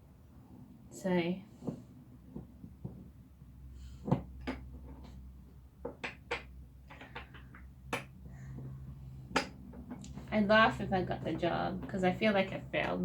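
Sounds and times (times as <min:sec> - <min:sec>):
chair parts clicking and knocking: 0:01.6 - 0:03.3, 0:04.0 - 0:10.6.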